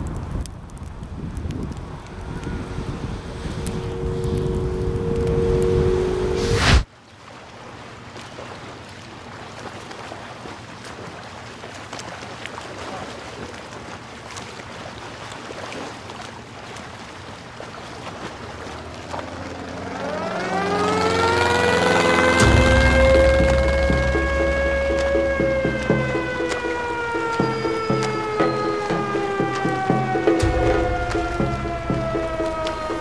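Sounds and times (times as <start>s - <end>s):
wind: 0.0s - 33.0s
low hum: 0.6s - 6.9s, 18.7s - 33.0s
surf: 1.5s - 33.0s
air-raid siren winding up: 1.6s - 6.8s, 19.7s - 33.0s.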